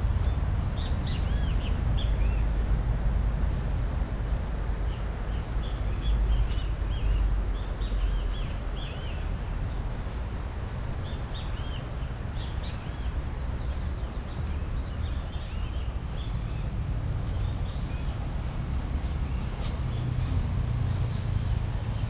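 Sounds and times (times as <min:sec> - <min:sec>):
steady outdoor hiss: 0:00.0 - 0:22.0
small birds chirping: 0:04.9 - 0:20.4.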